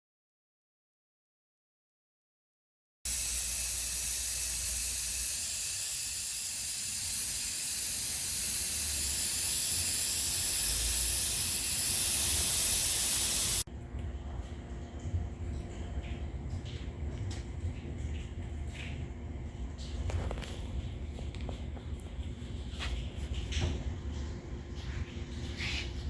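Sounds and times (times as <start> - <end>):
pressurised spray hissing: 3.1 - 13.7.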